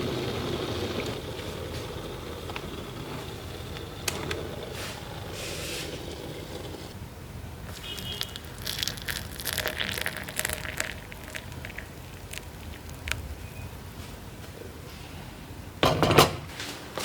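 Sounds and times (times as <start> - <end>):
teaware clinking: 7.7 - 13.2.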